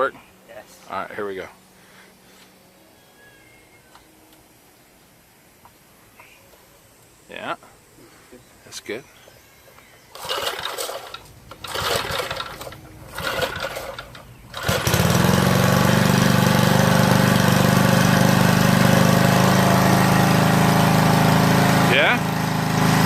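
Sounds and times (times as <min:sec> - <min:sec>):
recoil starter cranking: 0:10.1 - 0:23.0
small gasoline engine running: 0:10.1 - 0:23.0.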